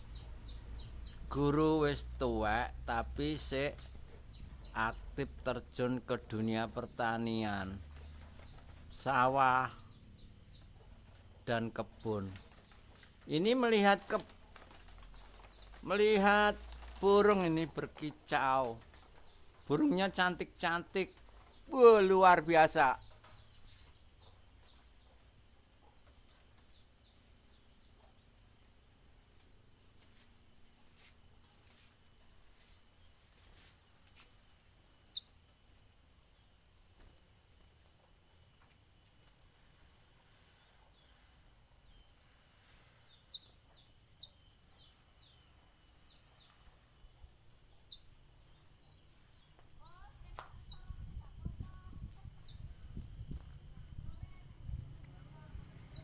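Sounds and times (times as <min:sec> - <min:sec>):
faint bird chirps: 0:00.0 - 0:29.1, 0:34.9 - 0:35.7, 0:39.2 - 0:56.0
high-pitched insect trill: 0:00.0 - 0:56.0.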